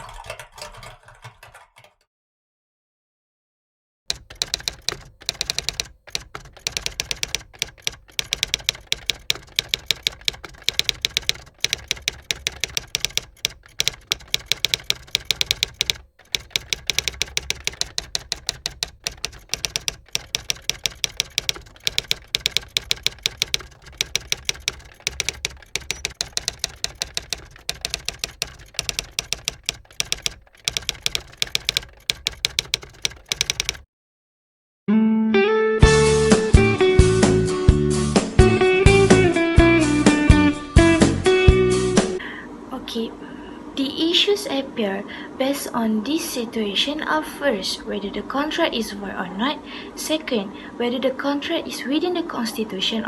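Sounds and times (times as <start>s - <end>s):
rapid typing clicks: 0.0s - 2.0s, 4.1s - 33.9s.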